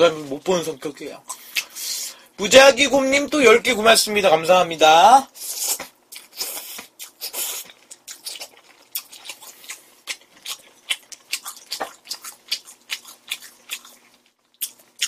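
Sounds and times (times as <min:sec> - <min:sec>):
wet chewing and lip-smacking: 0:01.3 - 0:02.0, 0:05.4 - 0:15.0.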